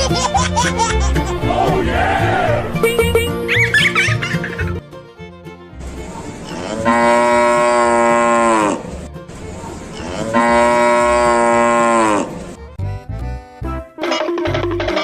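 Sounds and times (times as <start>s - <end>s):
cow mooing: 6.5s - 9.0s, 9.9s - 12.5s.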